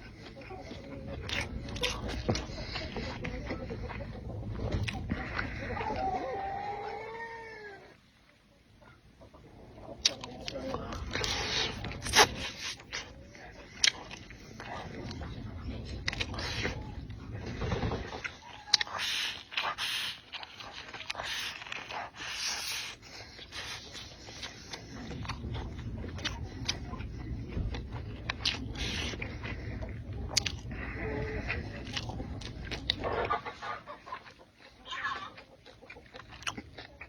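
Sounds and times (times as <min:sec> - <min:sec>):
low rumble: 0:00.0 - 0:06.3, 0:09.4 - 0:18.5, 0:23.0 - 0:33.6
chewing and slurping: 0:00.0 - 0:07.0, 0:09.4 - 0:37.0.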